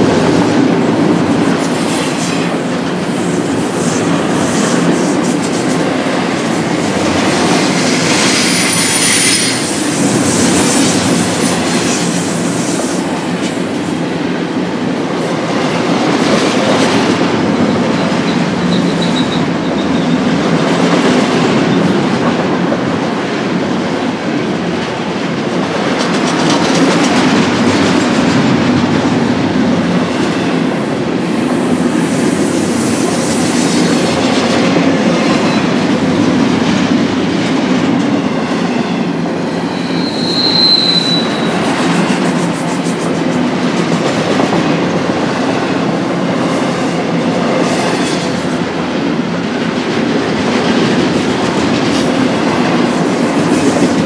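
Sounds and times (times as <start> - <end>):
train wheels clacking on rails: 0.0 - 54.0
high wheel squeal: 8.2 - 10.8, 17.7 - 20.2, 38.2 - 41.7.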